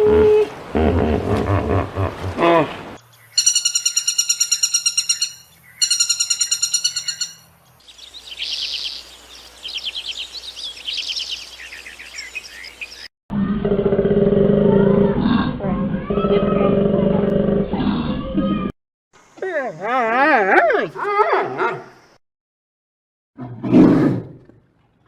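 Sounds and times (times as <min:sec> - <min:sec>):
low-pitched animal call: 0:00.0 - 0:02.8, 0:13.3 - 0:18.7
bird trills and chirps: 0:03.1 - 0:13.1.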